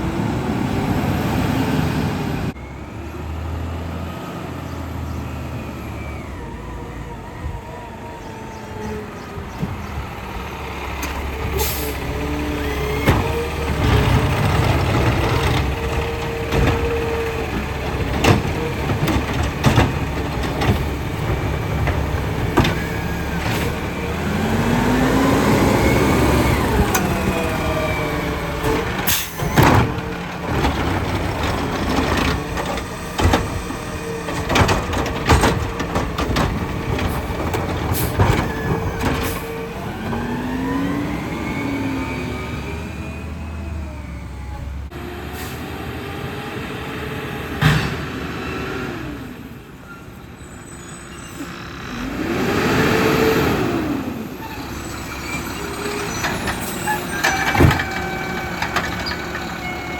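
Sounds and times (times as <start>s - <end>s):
diesel engine running: 6.3s - 45.5s
knocks and clanks: 12.8s - 24.1s, 26.5s - 40.4s, 56.1s - 59.9s.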